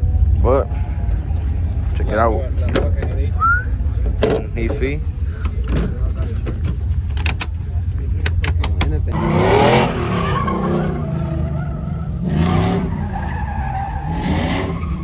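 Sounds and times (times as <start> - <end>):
tire squeal: 0.0 - 4.1, 9.1 - 15.0
steady low rumble: 0.0 - 12.0
vehicle engines revving: 0.0 - 15.0
sharp clicks: 6.5 - 7.6, 8.2 - 9.1.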